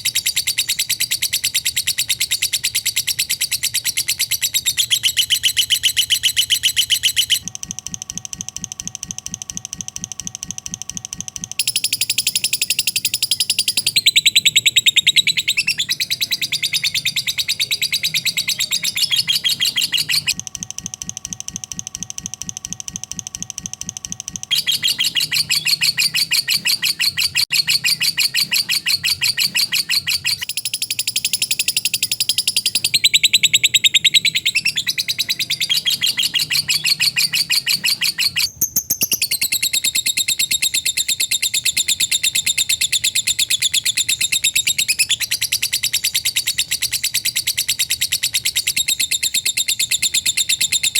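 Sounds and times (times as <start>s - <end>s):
bird chattering trill: 0.0s - 8.0s, 11.1s - 20.4s, 23.9s - 50.9s.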